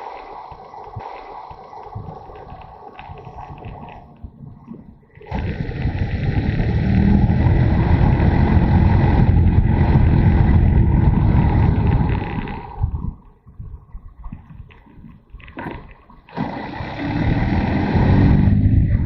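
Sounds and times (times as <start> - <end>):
wind rushing over microphone: 0.0 - 15.3, 16.8 - 19.0
motorcycle engine: 5.3 - 12.6, 16.4 - 19.0.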